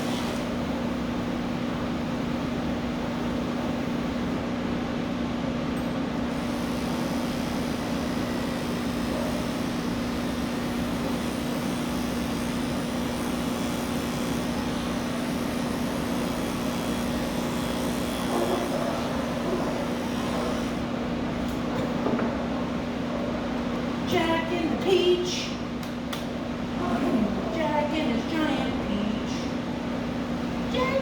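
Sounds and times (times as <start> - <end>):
electric clippers humming: 6.3 - 20.9.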